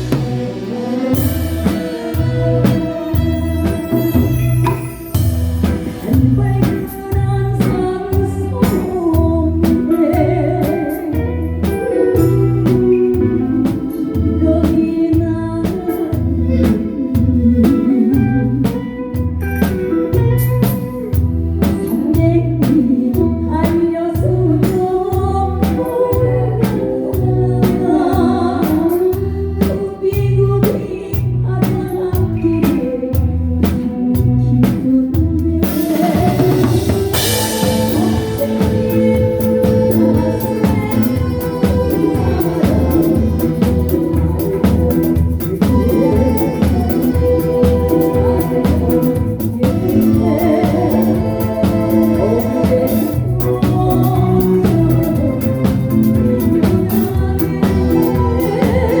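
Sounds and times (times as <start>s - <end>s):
drum kit hits: 0.0s - 9.9s, 35.7s - 59.0s
bass guitar notes: 0.0s - 59.0s
electric guitar: 0.0s - 59.0s
live band playing: 0.0s - 59.0s
person singing: 0.0s - 59.0s.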